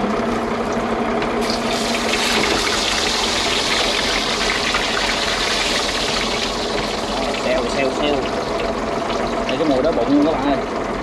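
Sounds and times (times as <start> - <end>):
boat engine running: 0.0 - 11.0
fish sizzling in hot oil: 1.4 - 9.5.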